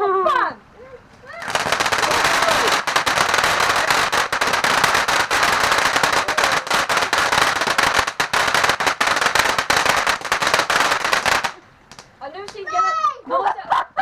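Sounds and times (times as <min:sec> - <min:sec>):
firework crackling: 0:01.3 - 0:12.6
firework hiss: 0:01.4 - 0:12.2.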